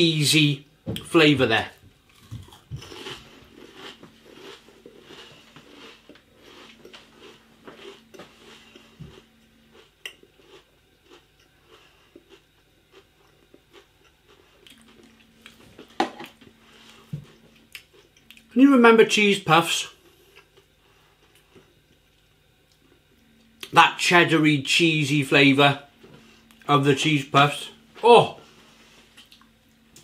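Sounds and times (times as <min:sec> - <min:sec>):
person crunching crisps: 0:02.1 - 0:15.6.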